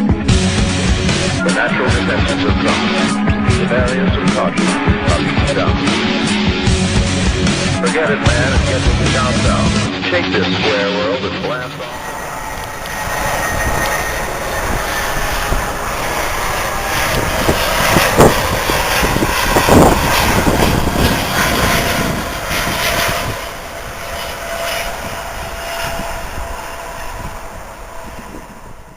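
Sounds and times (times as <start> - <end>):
jet engine roar: 0.0 - 28.9
faint steady whine: 11.4 - 19.0.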